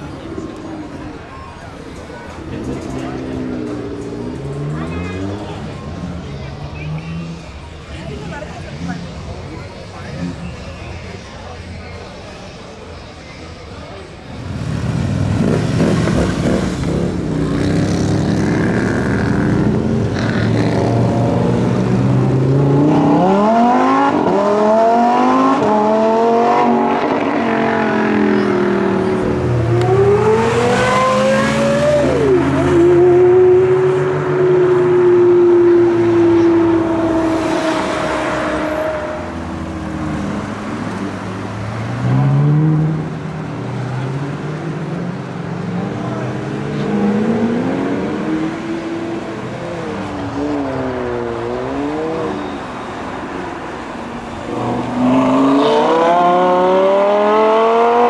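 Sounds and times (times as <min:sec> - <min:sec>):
supercar engines accelerating: 0:14.2 - 0:58.0.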